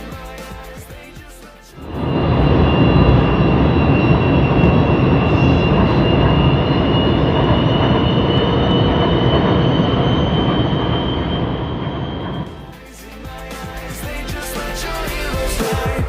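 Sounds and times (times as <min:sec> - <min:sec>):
train rumbling on track: 0:01.8 - 0:12.8
high whine: 0:01.8 - 0:12.9.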